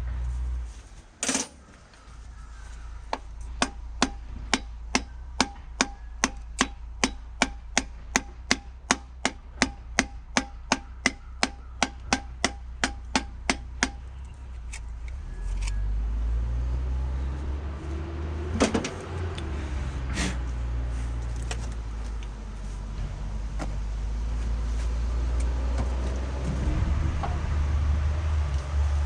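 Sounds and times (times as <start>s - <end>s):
piston tapping into cylinder: 3.1s - 14.0s
low rumble: 12.6s - 29.0s.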